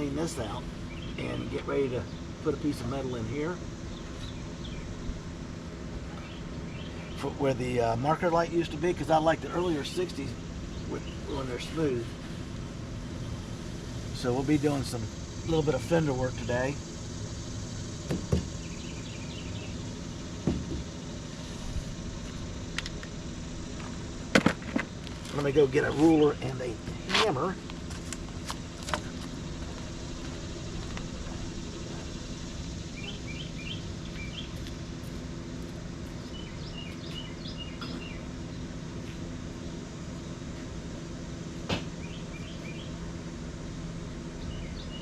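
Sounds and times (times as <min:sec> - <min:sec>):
steady mechanical hum: 0:00.0 - 0:45.0
small bird chirping: 0:00.8 - 0:02.4, 0:18.5 - 0:20.3, 0:30.1 - 0:34.7, 0:36.2 - 0:38.7, 0:41.9 - 0:43.0, 0:44.3 - 0:45.0.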